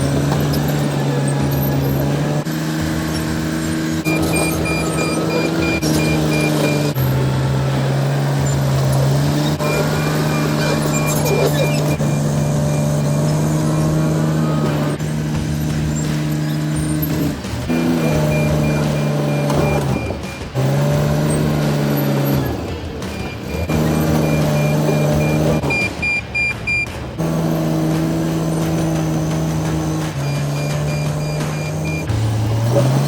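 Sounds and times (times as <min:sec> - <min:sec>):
bulldozer diesel engine: 0:00.0 - 0:33.0
backup alarm beeping: 0:04.0 - 0:07.0, 0:09.6 - 0:14.8, 0:17.7 - 0:20.5, 0:22.2 - 0:27.0, 0:29.6 - 0:32.1.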